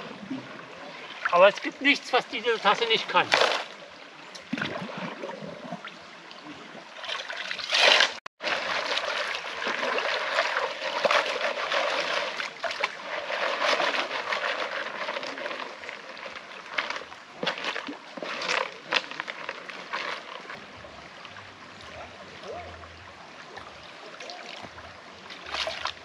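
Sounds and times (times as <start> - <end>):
water sloshing: 0.0 - 26.0
water splash: 0.0 - 26.0
gravel swishing in a pan: 7.8 - 20.6.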